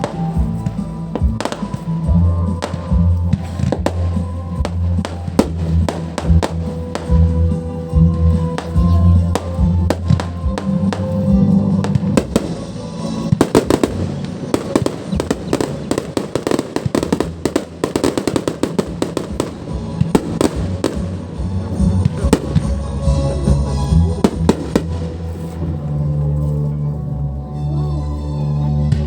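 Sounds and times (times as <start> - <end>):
fireworks bangs and crackles: 0.0 - 26.4
music playing: 0.0 - 29.0.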